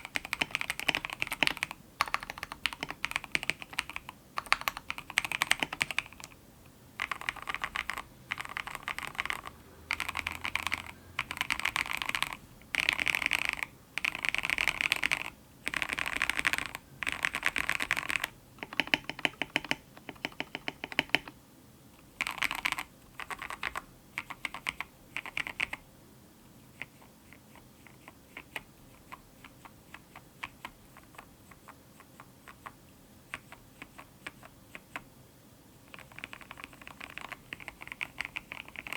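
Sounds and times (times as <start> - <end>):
typing on mechanical keyboard: 0.0 - 6.4, 7.0 - 21.4, 22.2 - 25.8, 35.8 - 38.9.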